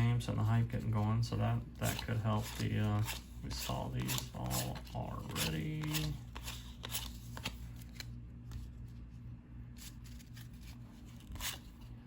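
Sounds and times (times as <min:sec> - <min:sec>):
cardboard cards being flipped: 0:01.8 - 0:09.1, 0:09.7 - 0:12.0.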